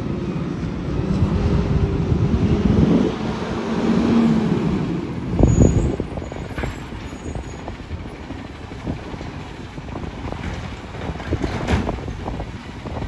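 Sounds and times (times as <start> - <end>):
clunks and knocks: 10.4 - 12.4.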